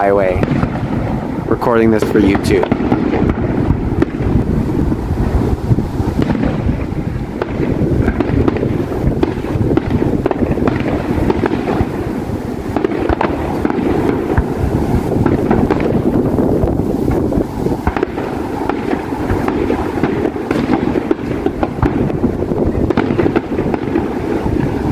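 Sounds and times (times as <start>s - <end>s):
distant fireworks popping: 0.0s - 24.9s.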